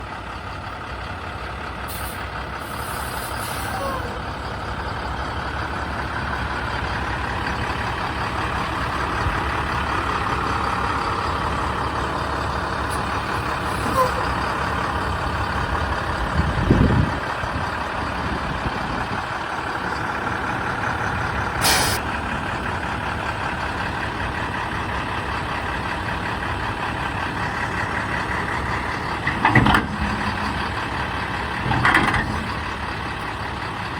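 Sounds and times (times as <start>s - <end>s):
diesel truck engine running: 0.0s - 33.9s
air hisses: 21.6s - 22.0s.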